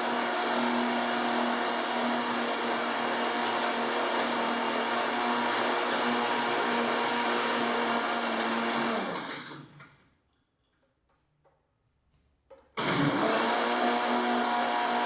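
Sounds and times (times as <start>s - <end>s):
electric blender motor: 0.0s - 9.8s, 12.8s - 15.0s.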